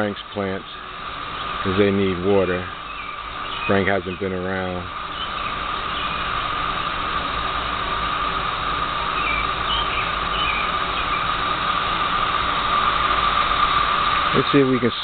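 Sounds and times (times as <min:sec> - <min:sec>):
garden hose spraying water: 0:00.0 - 0:15.0
low hum: 0:00.0 - 0:15.0.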